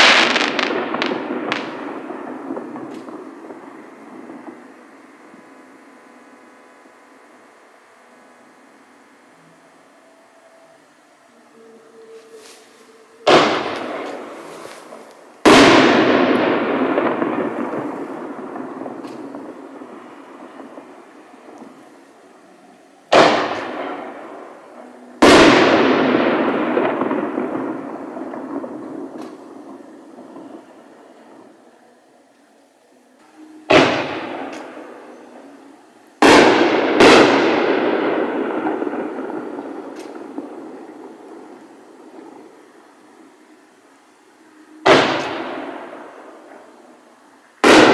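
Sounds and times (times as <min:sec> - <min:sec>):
firework shells bursting: 0:00.0 - 0:04.8, 0:12.2 - 0:22.2, 0:23.0 - 0:30.7, 0:33.5 - 0:43.6
echoing rumble: 0:00.0 - 0:07.3, 0:13.0 - 0:32.0, 0:33.2 - 0:47.9.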